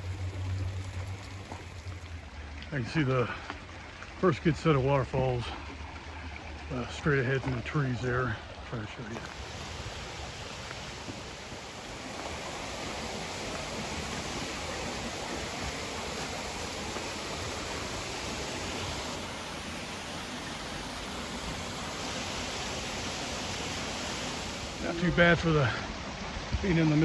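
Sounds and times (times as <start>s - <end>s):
waterfall rushing: 0.0s - 3.5s, 8.9s - 27.0s.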